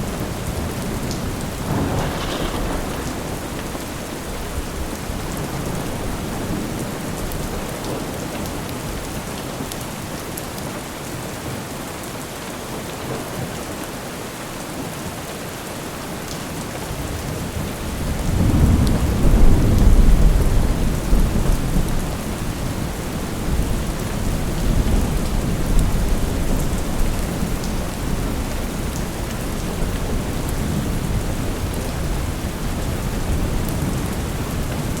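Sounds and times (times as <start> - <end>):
rolling thunder: 0.0 - 7.6, 17.6 - 35.0
steady rain falling: 0.0 - 35.0.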